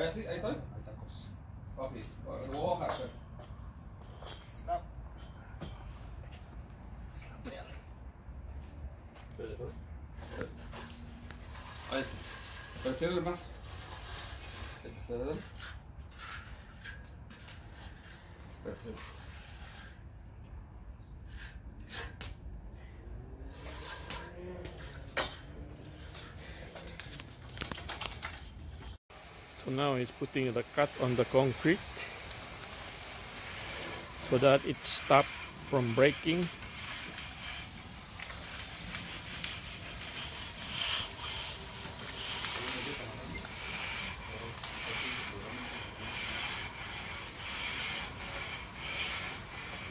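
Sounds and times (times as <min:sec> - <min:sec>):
hand tools scraping wet concrete: 0:10.2 - 0:20.2, 0:23.2 - 0:28.5, 0:29.6 - 0:49.9.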